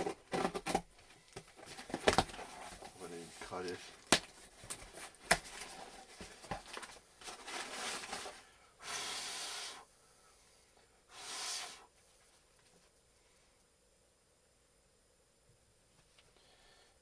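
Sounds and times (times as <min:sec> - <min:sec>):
packaging clicks and rustling: 0:00.0 - 0:08.4.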